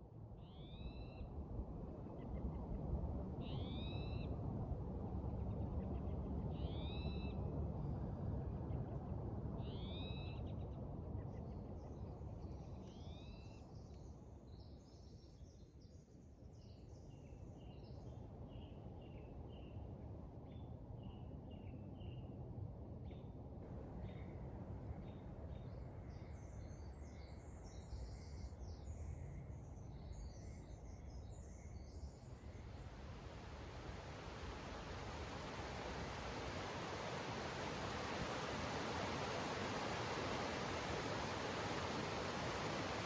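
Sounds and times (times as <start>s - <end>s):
low rushing noise: 32.5s - 43.0s.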